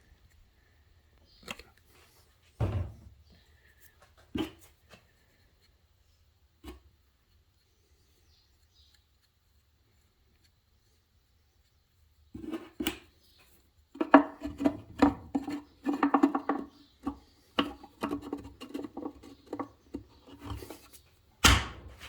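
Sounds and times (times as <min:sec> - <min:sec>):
clicks taps and scrapes of handling: 0:12.4 - 0:22.0.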